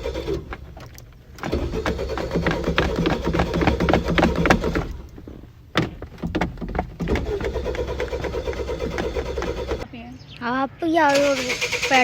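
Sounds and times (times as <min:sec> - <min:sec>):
starter motor cranking engine: 0:00.0 - 0:09.9, 0:11.1 - 0:12.0.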